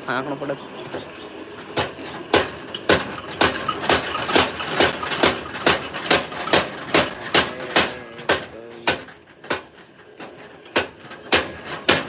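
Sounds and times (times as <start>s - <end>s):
power hammer striking metal: 1.8s - 12.0s.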